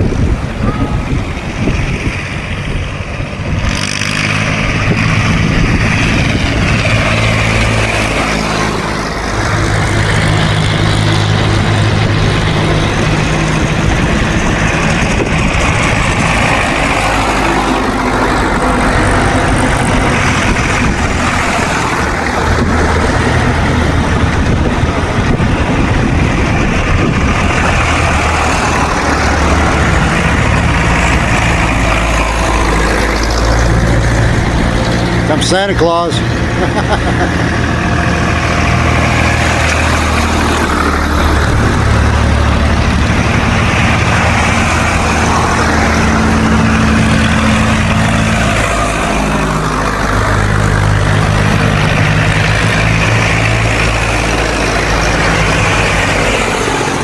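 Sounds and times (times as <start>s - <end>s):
tractor engines passing: 0.0s - 57.0s.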